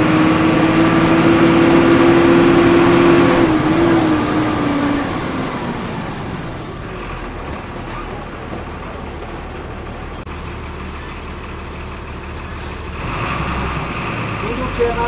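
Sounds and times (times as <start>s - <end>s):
bus engine revving: 0.0s - 15.0s.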